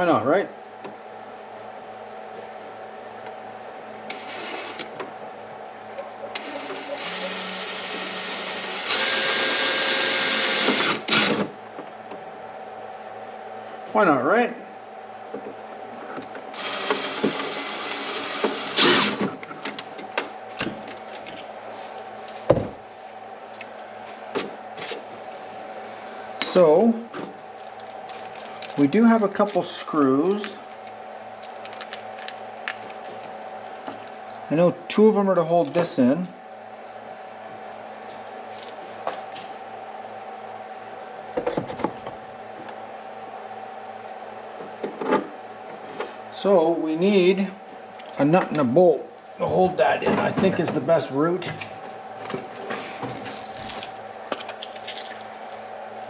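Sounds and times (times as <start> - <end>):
steady electrical hum: 0.0 - 56.0
rustling scrape: 52.6 - 53.2.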